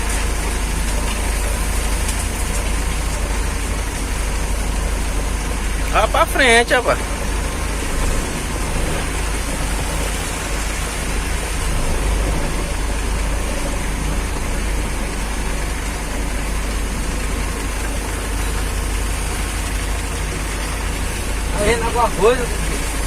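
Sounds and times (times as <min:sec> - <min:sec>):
heavy vehicle engine rumbling: 0:00.0 - 0:23.0.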